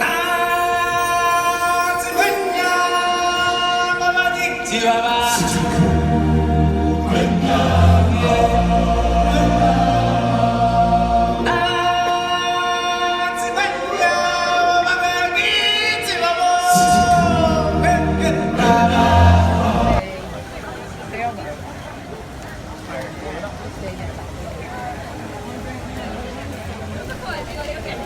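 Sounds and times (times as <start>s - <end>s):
choir holding long sung notes: 0.0s - 21.0s
musical backing with heavy bass: 4.8s - 13.4s, 16.3s - 20.0s.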